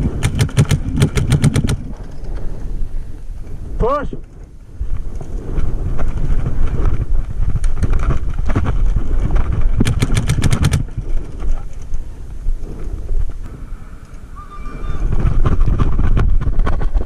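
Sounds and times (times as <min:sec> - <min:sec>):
paintball marker firing: 0:00.0 - 0:01.9, 0:09.8 - 0:10.9
wind rumble on microphone: 0:00.0 - 0:17.0.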